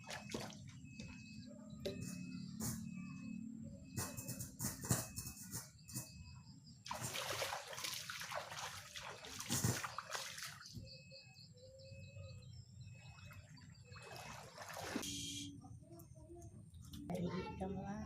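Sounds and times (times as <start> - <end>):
water splashing and trickling: 0.0 - 1.2, 6.8 - 10.8, 12.9 - 15.3.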